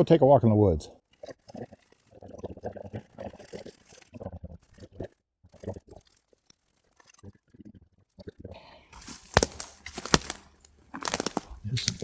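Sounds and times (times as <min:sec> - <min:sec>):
footsteps on forest floor: 0:08.9 - 0:12.0.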